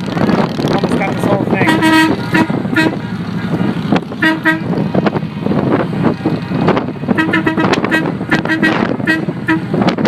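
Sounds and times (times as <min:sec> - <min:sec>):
motorcycle engines running: 0:00.0 - 0:10.0
vehicle horn short toots: 0:01.6 - 0:03.0, 0:04.2 - 0:04.7, 0:07.1 - 0:09.8.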